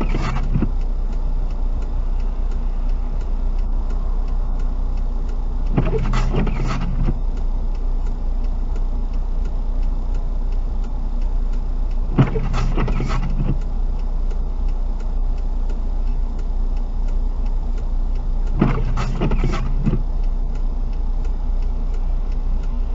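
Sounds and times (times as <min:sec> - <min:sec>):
rubbing strokes: 0:00.0 - 0:00.7, 0:05.7 - 0:07.2
car engine idle hum: 0:00.0 - 0:22.9
faint regular ticking: 0:00.0 - 0:22.9.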